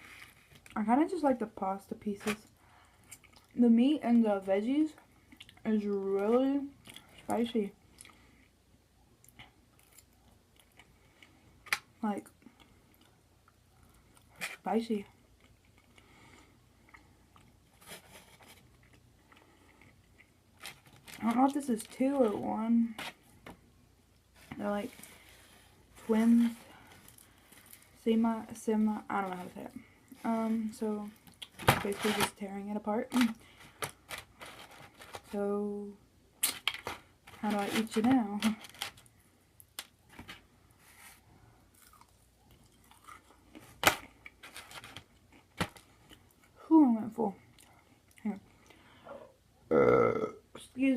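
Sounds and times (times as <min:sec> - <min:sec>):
chewing food: 0:03.0 - 0:03.6, 0:41.7 - 0:44.4.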